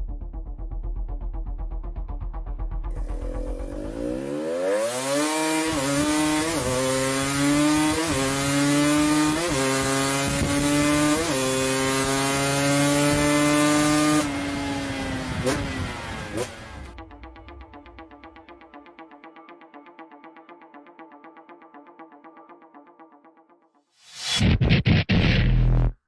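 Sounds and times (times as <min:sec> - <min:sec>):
two-stroke motorcycle engine revving: 0:03.0 - 0:17.0.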